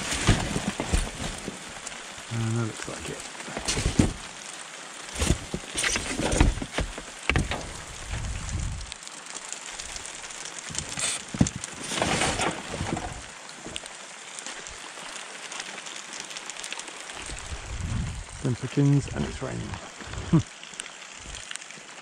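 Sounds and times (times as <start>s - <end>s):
rain pattering: 0.0s - 22.0s
scrap metal knocks and clatters: 11.0s - 13.2s.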